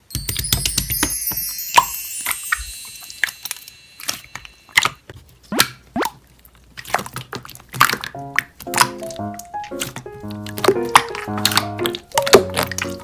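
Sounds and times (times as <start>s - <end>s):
slime squished and poked: 5.5s - 13.0s
tune with steady notes: 8.2s - 13.0s.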